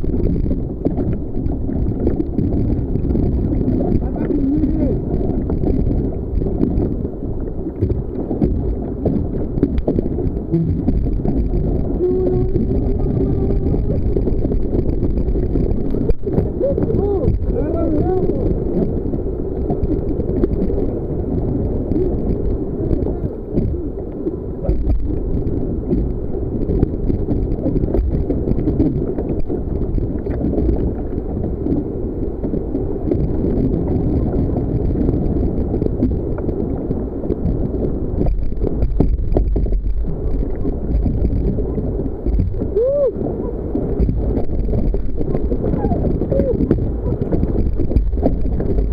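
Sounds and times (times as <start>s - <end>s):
water sloshing around kayak: 0.0s - 48.9s
bubbling warbles: 8.0s - 19.0s, 42.4s - 48.9s.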